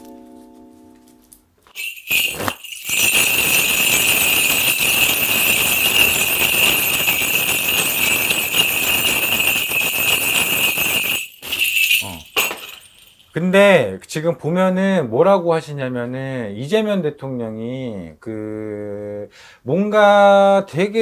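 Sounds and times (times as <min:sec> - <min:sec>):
bell cluster jingling: 0:01.7 - 0:13.4.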